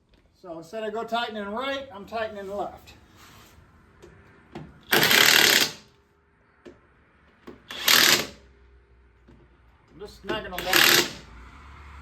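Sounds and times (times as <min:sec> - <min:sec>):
impact wrench hammering: 0:04.9 - 0:05.9, 0:07.5 - 0:08.4, 0:10.2 - 0:11.2.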